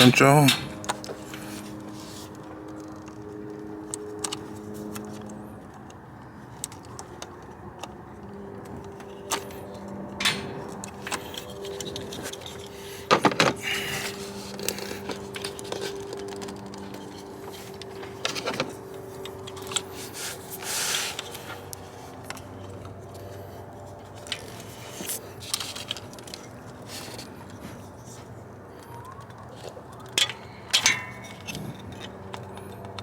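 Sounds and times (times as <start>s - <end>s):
tools and metal parts clinking: 29.2s - 33.0s.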